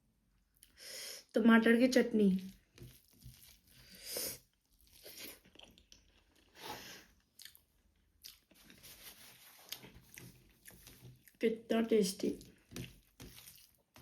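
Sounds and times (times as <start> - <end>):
person chewing and crunching food: 2.4 - 11.4, 12.3 - 14.0.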